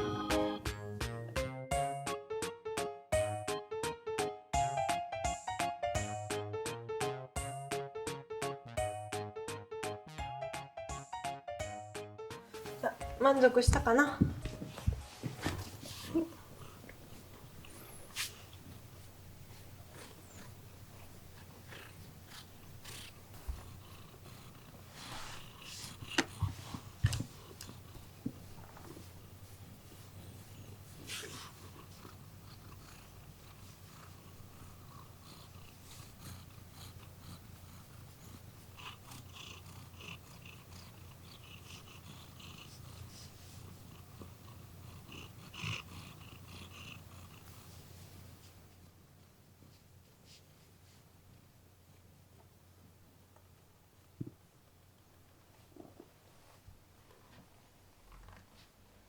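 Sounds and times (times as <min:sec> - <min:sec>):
cat purring: 0:12.6 - 0:49.0, 0:49.6 - 0:59.0.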